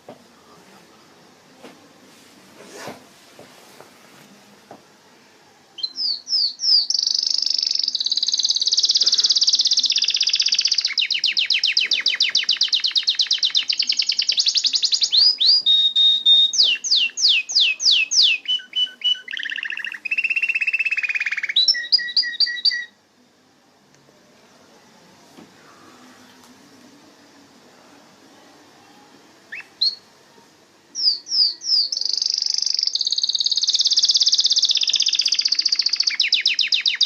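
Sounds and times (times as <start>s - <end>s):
canary singing: 5.8s - 23.0s, 28.8s - 30.2s, 30.9s - 37.0s.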